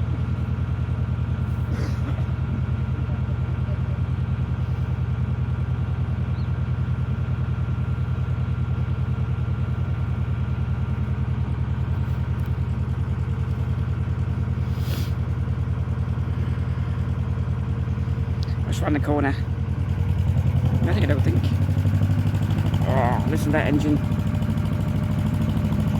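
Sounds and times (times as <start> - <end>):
boat diesel engine chugging: 0.0 - 25.9
brief hiss: 14.6 - 15.2.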